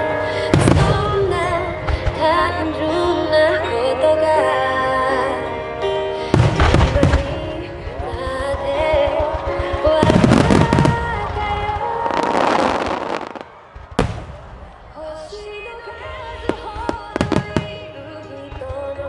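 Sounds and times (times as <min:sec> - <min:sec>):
show music: 0:00.0 - 0:19.0
fireworks bursting and crackling: 0:06.3 - 0:15.3, 0:16.4 - 0:19.0.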